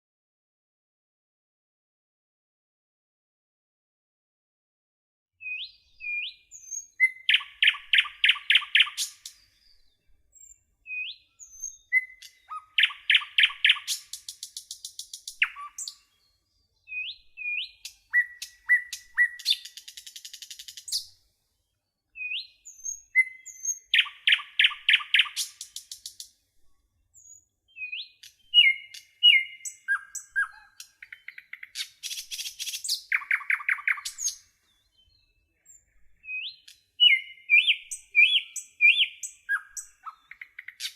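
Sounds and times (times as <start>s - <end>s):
songbird whistles and trills: 5.4s - 21.2s, 21.8s - 26.3s, 27.2s - 40.9s.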